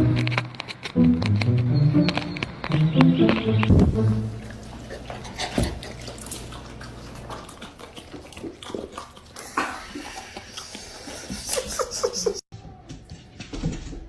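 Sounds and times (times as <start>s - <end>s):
water splashing and dripping: 3.6s - 11.2s.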